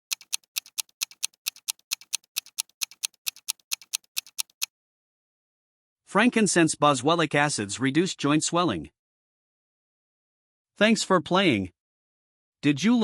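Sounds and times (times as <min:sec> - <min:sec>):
fast clock ticks: 0:00.0 - 0:04.7.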